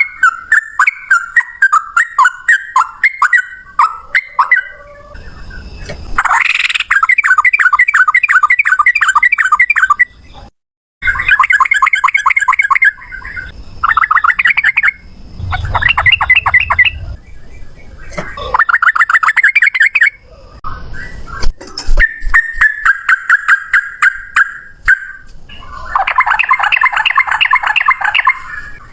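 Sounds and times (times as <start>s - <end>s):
bird chirping rapidly: 11.0s - 20.2s, 22.0s - 28.8s.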